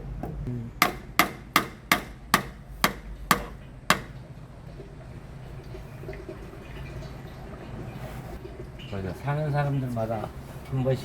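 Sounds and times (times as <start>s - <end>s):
sharp hammer strikes on metal: 0.8s - 4.2s.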